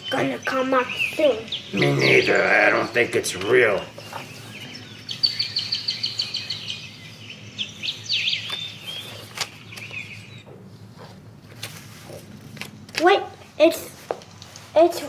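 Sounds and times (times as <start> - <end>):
bird singing: 0.0 - 10.6
low steady hum: 0.0 - 15.0.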